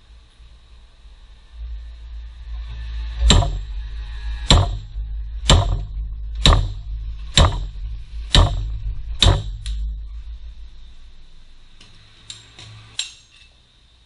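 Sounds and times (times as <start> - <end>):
steady low hum: 0.0 - 14.0
hammer striking metal: 3.2 - 10.0.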